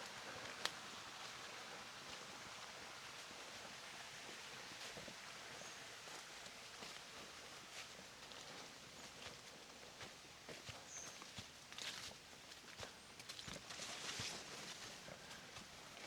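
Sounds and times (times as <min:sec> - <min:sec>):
faint forest rustling: 0:04.8 - 0:16.0.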